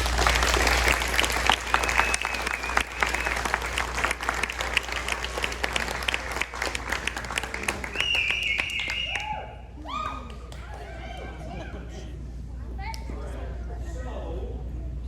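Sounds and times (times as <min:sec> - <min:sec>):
audience applauding: 0:00.0 - 0:10.4
high voices cheering: 0:00.0 - 0:11.5.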